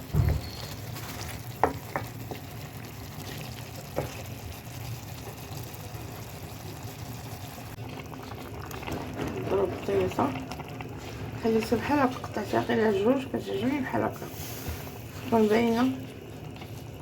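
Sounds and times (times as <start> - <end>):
chicken sizzling in oil: 0.0 - 13.2.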